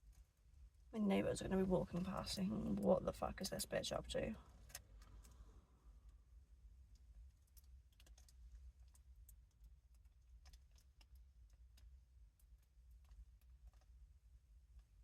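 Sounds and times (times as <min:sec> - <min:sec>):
low steady rumble: 0:00.0 - 0:15.0
small clicks and taps of hands: 0:06.9 - 0:14.0.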